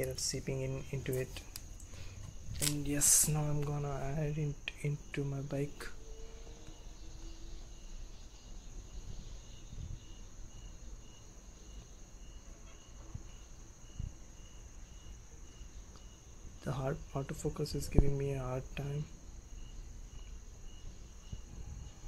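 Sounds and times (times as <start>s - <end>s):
continuous high hiss: 0.0s - 22.0s
crickets chirping: 0.0s - 22.0s.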